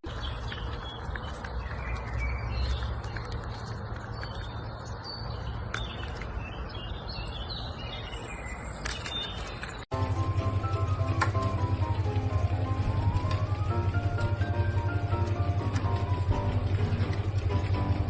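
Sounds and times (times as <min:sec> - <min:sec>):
birds chirping: 0:00.0 - 0:18.0
low hum: 0:09.9 - 0:18.0.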